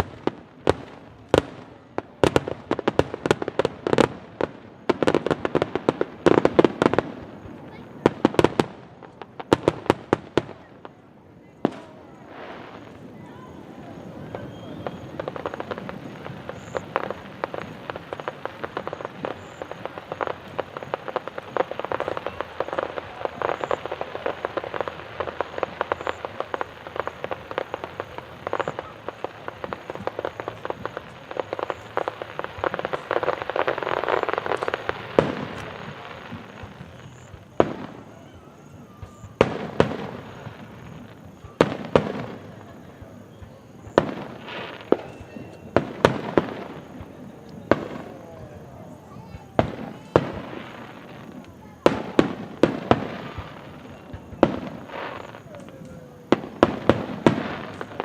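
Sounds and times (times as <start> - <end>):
fireworks bangs: 0.0 - 58.0
fireworks crackling: 0.0 - 58.0.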